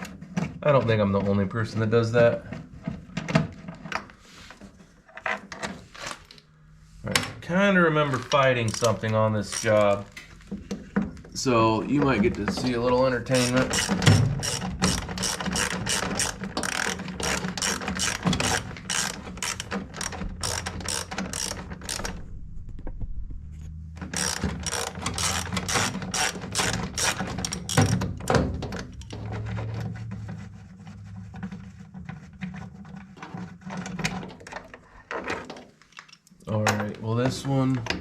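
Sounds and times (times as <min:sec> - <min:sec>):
socket ratchet clicking: 0:13.4 - 0:22.2, 0:24.1 - 0:28.0.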